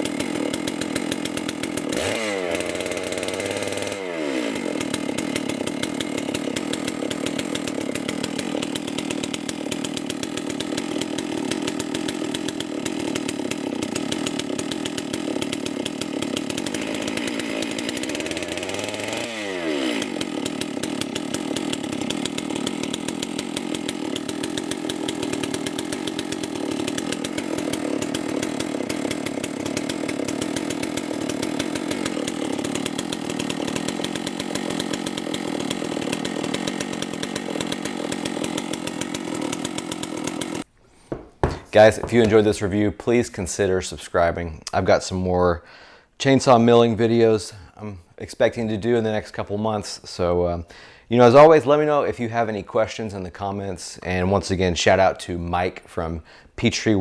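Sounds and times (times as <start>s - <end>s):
chainsaw engine running: 0.0s - 42.8s.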